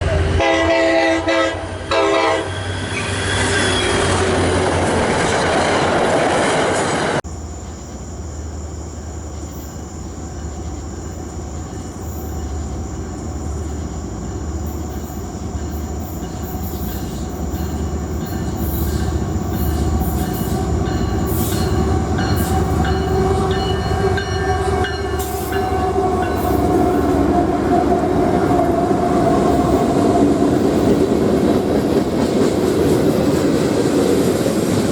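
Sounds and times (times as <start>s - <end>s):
locomotive air horn: 0.0s - 4.1s, 18.6s - 30.4s
train rumbling past: 0.0s - 34.9s.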